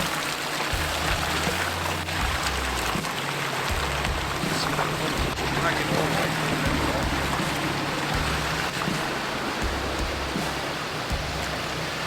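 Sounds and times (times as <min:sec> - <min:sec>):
continuous rushing noise: 0:00.0 - 0:12.0
off-road vehicle engine at low revs: 0:00.0 - 0:12.0.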